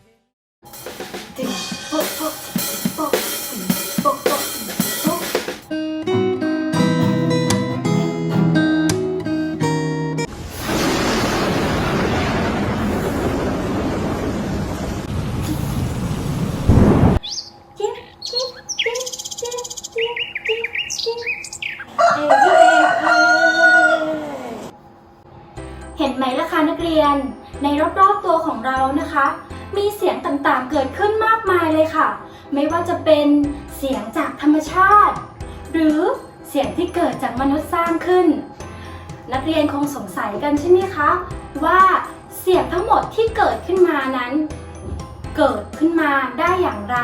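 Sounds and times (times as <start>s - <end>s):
drum kit playing: 0.6s - 5.7s
small bird chirping: 17.2s - 22.0s
rooster crowing: 21.9s - 24.7s.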